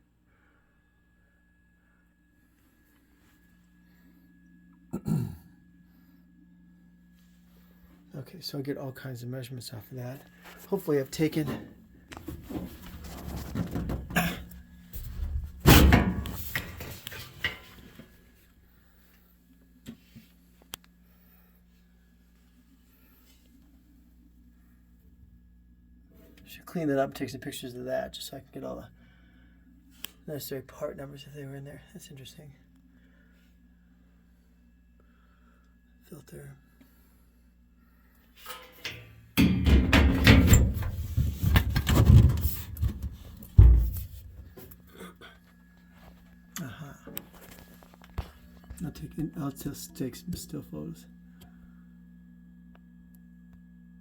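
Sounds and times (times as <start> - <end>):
faint steady low hum: 0.0 - 54.0
filter scraping and rattling in cabinet: 11.4 - 17.8, 38.5 - 44.7
hard thump: 39.4 - 44.7.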